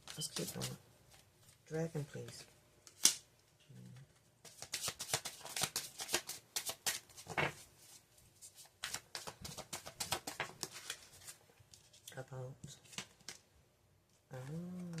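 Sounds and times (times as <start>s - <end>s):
cards being shuffled: 0.0s - 1.6s, 4.1s - 12.1s.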